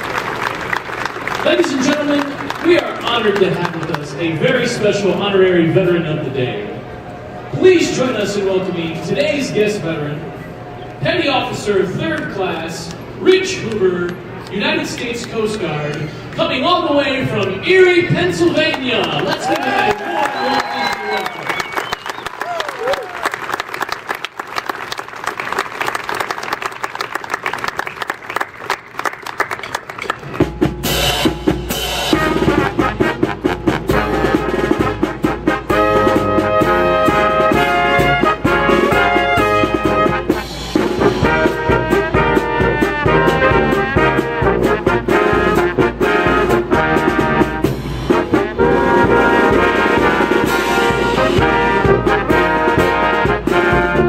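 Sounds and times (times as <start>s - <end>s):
crowd applauding: 0.0s - 4.3s, 18.7s - 30.7s
brass band with drums: 29.6s - 54.0s.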